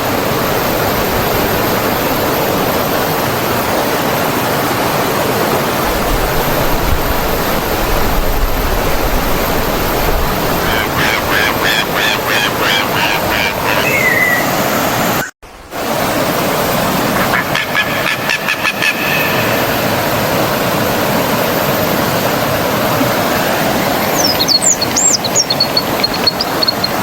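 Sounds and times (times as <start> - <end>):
stream water flowing: 0.0 - 27.0
bird calling short high notes: 10.6 - 15.3.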